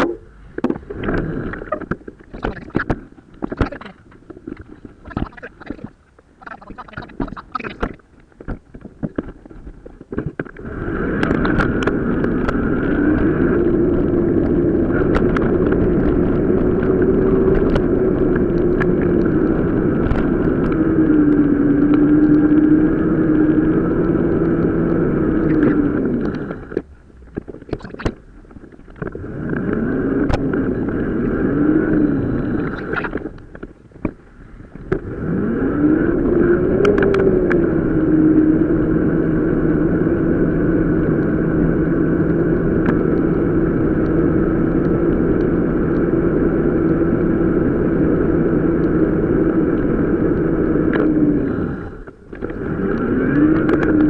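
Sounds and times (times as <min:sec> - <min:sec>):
sped-up bike riding drone: 0:00.0 - 0:54.0
scattered clicks: 0:01.0 - 0:09.4.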